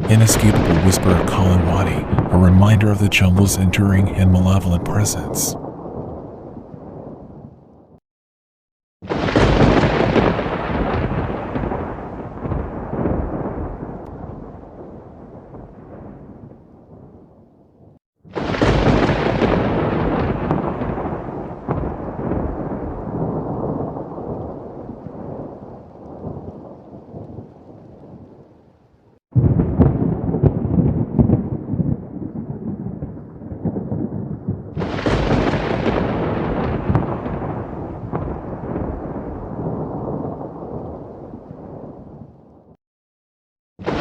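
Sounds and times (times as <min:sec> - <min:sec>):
rain: 0:00.0 - 0:07.8, 0:09.1 - 0:17.2, 0:18.3 - 0:42.7
rolling thunder: 0:00.0 - 0:08.0, 0:09.0 - 0:17.5, 0:18.3 - 0:28.4, 0:29.3 - 0:42.8, 0:43.8 - 0:44.0
thunder claps: 0:00.0 - 0:08.0, 0:09.0 - 0:17.3, 0:18.3 - 0:28.4, 0:29.3 - 0:42.8, 0:43.8 - 0:44.0.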